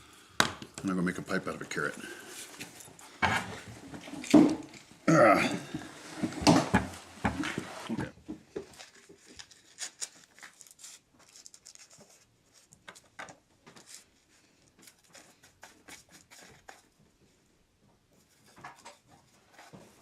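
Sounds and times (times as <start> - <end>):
objects clicking and scraping: 2.3 - 5.0.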